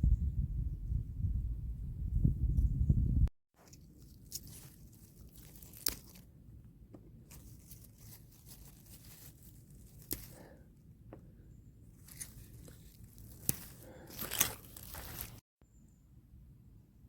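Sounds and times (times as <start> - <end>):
faint rustling and crackling: 7.2 - 10.6, 12.0 - 15.4.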